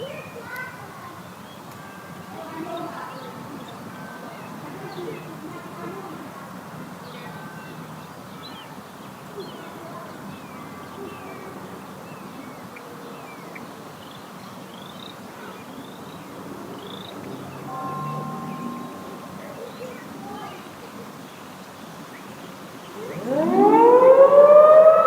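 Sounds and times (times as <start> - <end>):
small birds chirping: 0.0 - 23.6
steady background noise: 0.0 - 25.0
steady tone: 17.7 - 20.4.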